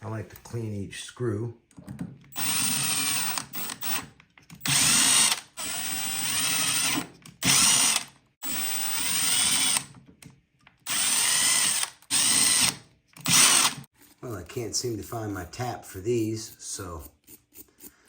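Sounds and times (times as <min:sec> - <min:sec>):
electric drill whining: 0:02.4 - 0:09.9, 0:10.9 - 0:13.9.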